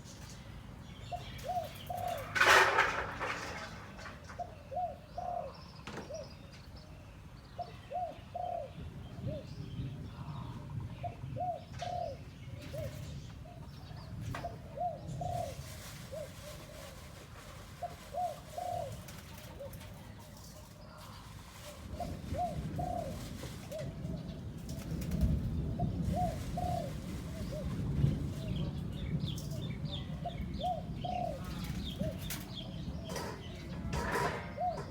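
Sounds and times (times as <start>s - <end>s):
dove cooing: 1.1s - 6.4s, 7.6s - 34.9s.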